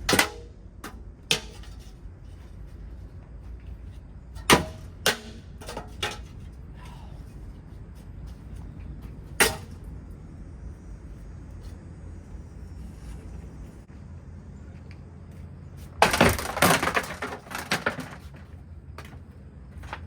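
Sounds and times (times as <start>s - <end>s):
fan parts being smashed: 0.0s - 2.5s, 4.3s - 6.7s, 9.3s - 9.9s, 16.0s - 18.5s
low steady rumble: 0.0s - 16.1s.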